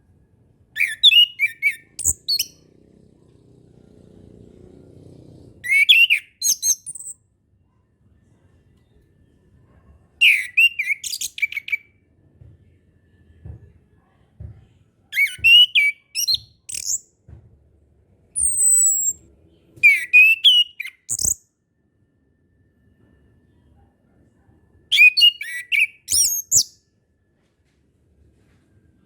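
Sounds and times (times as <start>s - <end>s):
thrush singing whistles: 0.8s - 2.6s, 5.6s - 7.2s, 10.2s - 11.9s, 15.2s - 17.0s, 18.4s - 19.2s, 19.8s - 21.4s, 24.9s - 26.8s.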